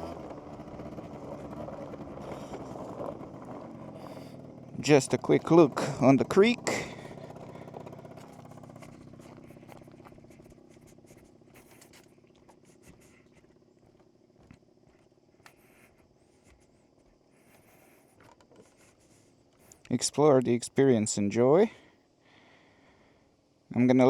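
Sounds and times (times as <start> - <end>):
scooter engine idling: 0.0 - 15.8
faint clicks and rustles: 0.2 - 20.5.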